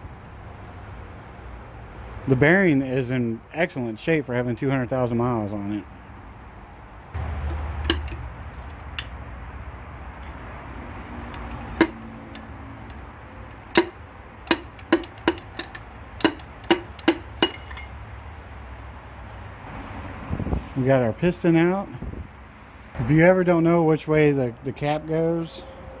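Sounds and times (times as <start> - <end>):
low steady hum: 7.2 - 18.6
sharp metal taps with ring: 7.8 - 9.1, 11.3 - 17.9.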